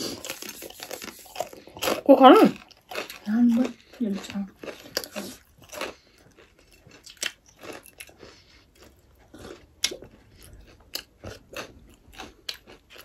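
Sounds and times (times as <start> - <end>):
people chewing: 0.0 - 13.0.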